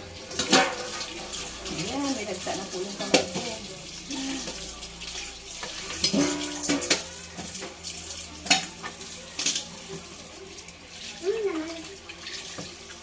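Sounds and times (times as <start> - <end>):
dishes knocking in a sink: 6.0 - 7.1.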